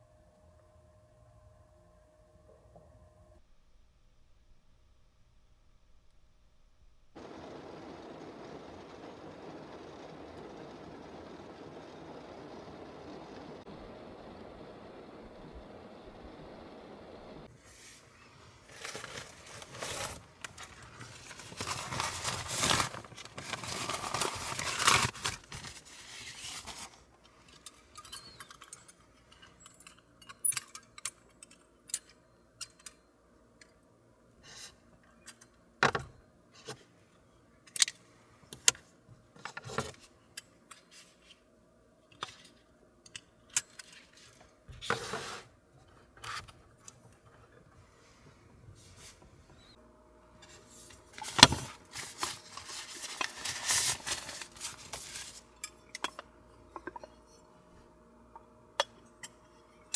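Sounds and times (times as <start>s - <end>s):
rustling of small objects: 17.4s - 28.4s, 50.4s - 55.9s
clicks clinks and light knocks: 27.6s - 33.7s.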